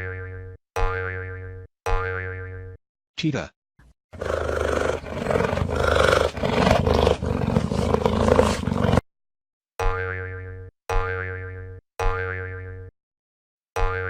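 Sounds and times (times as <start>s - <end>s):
cartoon boing sound effect: 0.0s - 2.8s, 9.8s - 12.9s, 13.8s - 14.0s
cheetah growling and snarling: 4.2s - 9.0s.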